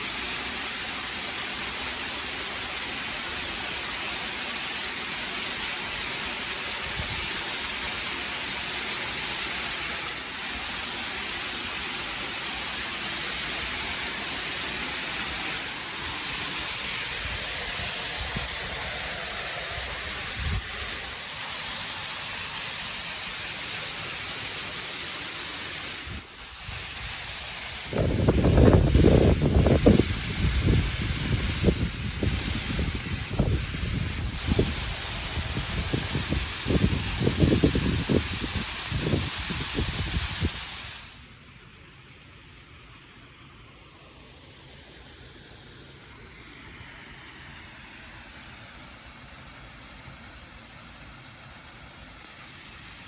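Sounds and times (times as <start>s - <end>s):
waterfall rushing: 0.0s - 41.2s.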